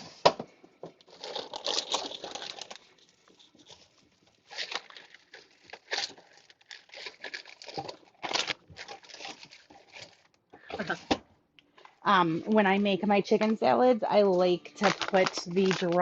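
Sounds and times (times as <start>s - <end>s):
plastic packaging crinkling: 1.0s - 11.0s, 14.2s - 16.0s.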